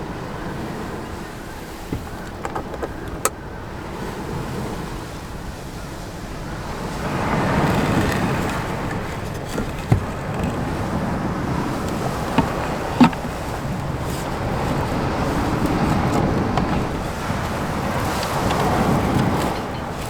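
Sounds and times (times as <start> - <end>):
sharp clicks and knocks: 1.9 - 3.4, 7.5 - 19.6.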